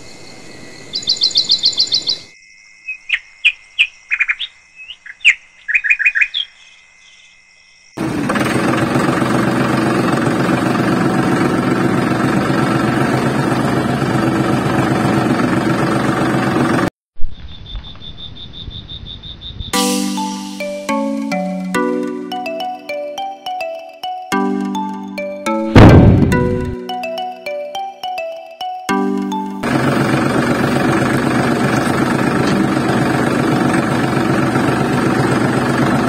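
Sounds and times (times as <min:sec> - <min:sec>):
birds chirping: 0:00.6 - 0:07.3
tractor engine running: 0:08.0 - 0:16.9, 0:24.7 - 0:26.8, 0:29.0 - 0:36.0.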